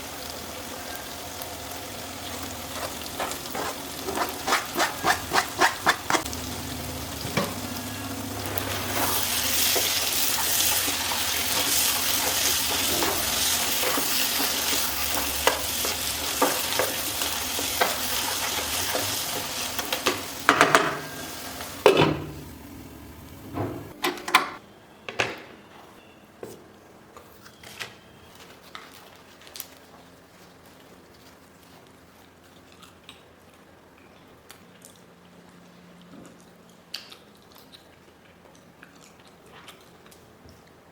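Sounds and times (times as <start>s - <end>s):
food sizzling in a pan: 0.0s - 23.2s
spatula scraping a pan: 2.7s - 6.3s.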